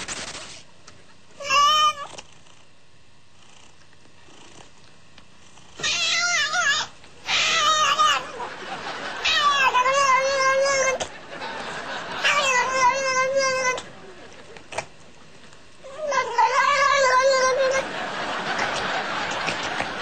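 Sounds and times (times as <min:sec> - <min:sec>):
cat meowing in wavering yowls: 0:01.4 - 0:02.1, 0:05.8 - 0:08.4, 0:09.2 - 0:11.0, 0:12.2 - 0:13.8, 0:15.9 - 0:17.8.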